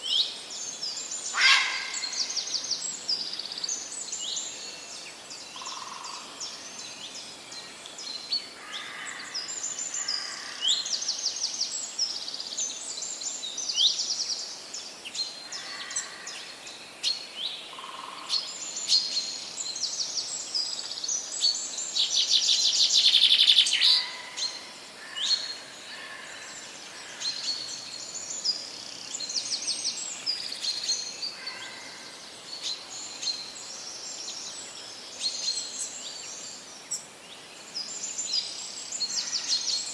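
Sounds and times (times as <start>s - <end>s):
forest birds singing: 0.0s - 39.9s
loud rapid bird trill: 1.3s - 2.3s.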